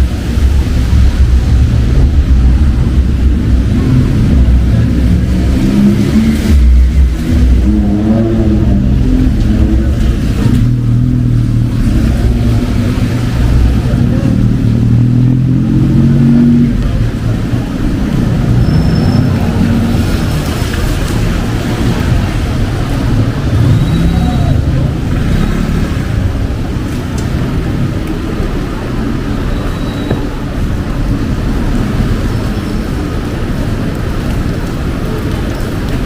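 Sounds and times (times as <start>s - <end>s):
people's voices: 0.0s - 36.0s
vehicles passing with rumble: 0.0s - 36.0s.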